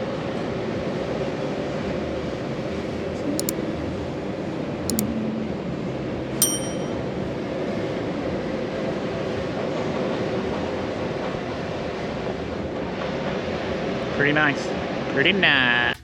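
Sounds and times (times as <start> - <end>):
sharp metallic ding: 6.4 - 7.0.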